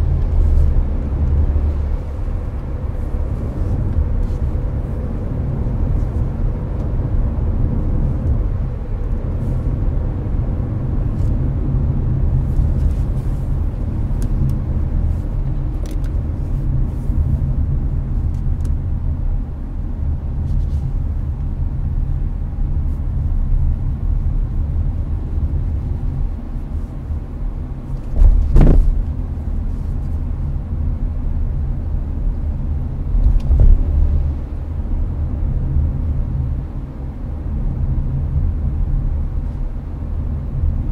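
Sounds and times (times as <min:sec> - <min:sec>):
road and tyre rumble: 0:00.0 - 0:40.9
loud thumps: 0:28.2 - 0:29.0.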